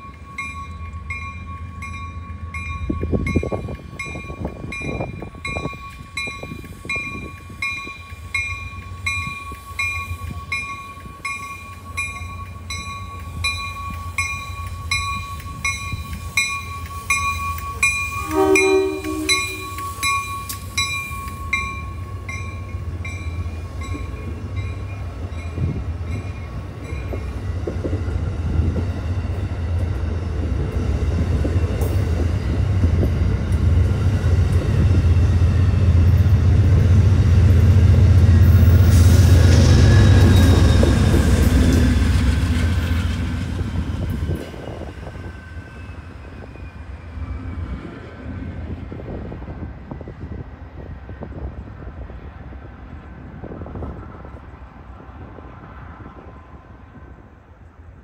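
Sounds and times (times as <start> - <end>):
train bell striking: 0.0 - 27.4
train rumbling past: 0.0 - 58.0
train horn blast: 18.1 - 20.0.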